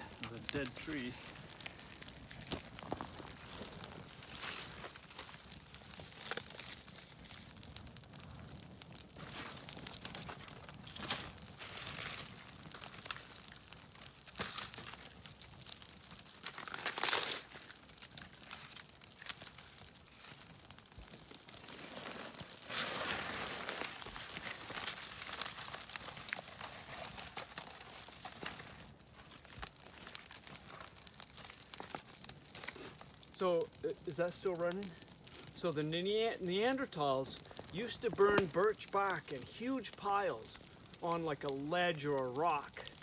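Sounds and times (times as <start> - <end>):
bark being torn and crumpled: 0.0 - 33.8.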